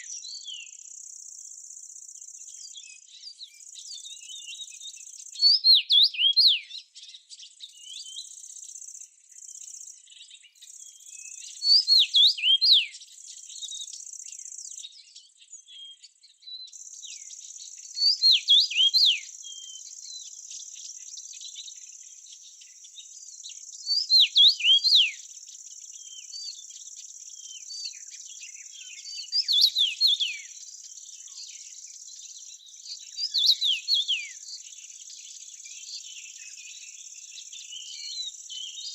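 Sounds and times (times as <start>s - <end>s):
songbird whistling: 0.0s - 1.1s, 2.5s - 6.8s, 10.8s - 13.0s, 16.6s - 25.4s, 26.0s - 34.6s, 35.5s - 38.9s.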